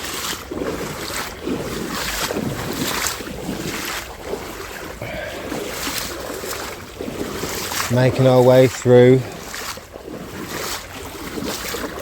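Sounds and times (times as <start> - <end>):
footsteps wading through water: 0.0 - 12.0.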